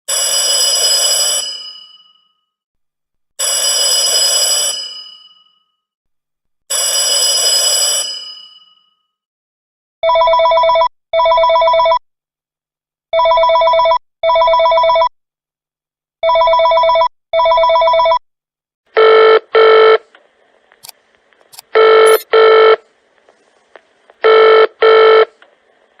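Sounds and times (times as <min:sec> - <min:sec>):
warbling electronic phone ring: 0:03.4 - 0:05.7, 0:21.8 - 0:22.7
room noise: 0:20.0 - 0:24.2.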